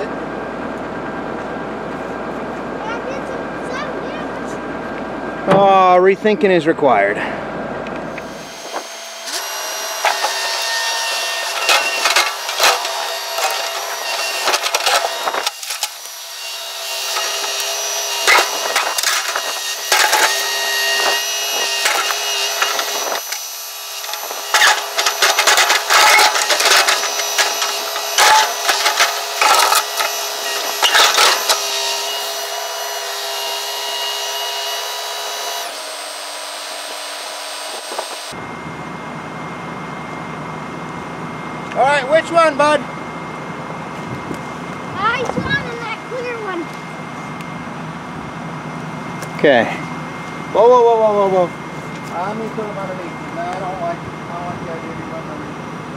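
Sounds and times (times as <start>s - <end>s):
excavator hydraulic whine: 7.0s - 55.9s
bucket scraping against rock: 24.1s - 31.6s.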